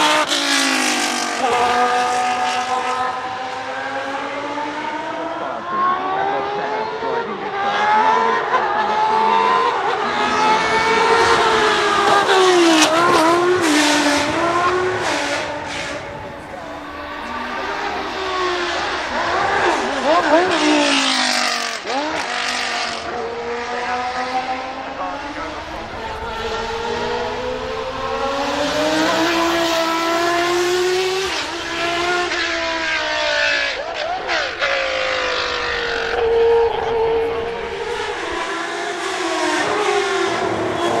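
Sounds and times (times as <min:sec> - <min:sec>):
race car engine at high revs: 0:00.0 - 0:41.0
engine crackles: 0:11.0 - 0:40.1.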